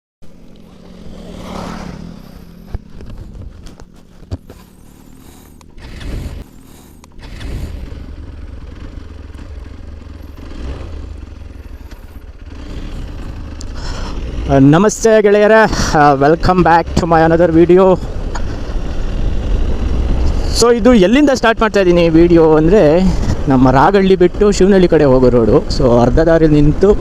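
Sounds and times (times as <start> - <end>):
motorcycle engine rumble: 0.2 - 27.0
clattering and scraping: 2.2 - 7.5.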